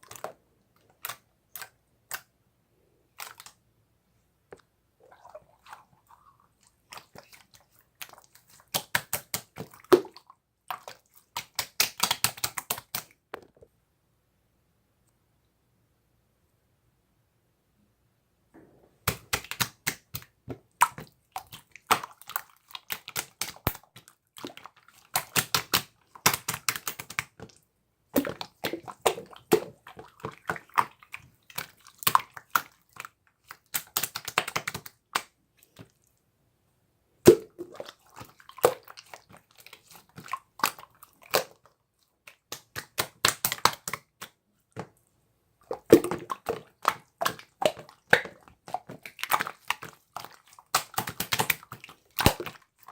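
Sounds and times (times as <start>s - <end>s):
slime crackling and popping: 45.8s - 52.5s.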